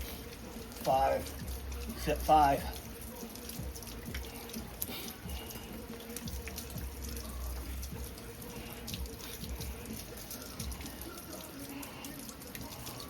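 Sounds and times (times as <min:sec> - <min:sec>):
rain falling: 0:00.0 - 0:13.0
water dripping: 0:00.0 - 0:13.0.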